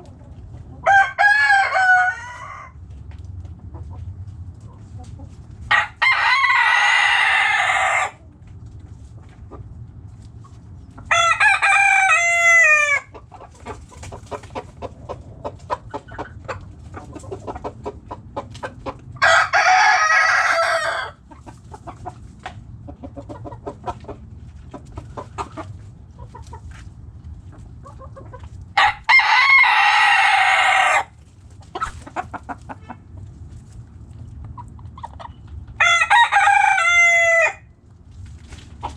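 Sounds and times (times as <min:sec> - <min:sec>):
hens clucking: 0:00.0 - 0:37.3, 0:38.4 - 0:38.9
roosters crowing: 0:00.7 - 0:02.8, 0:05.6 - 0:08.2, 0:11.0 - 0:13.3, 0:18.9 - 0:21.3, 0:28.8 - 0:32.5, 0:35.6 - 0:37.8.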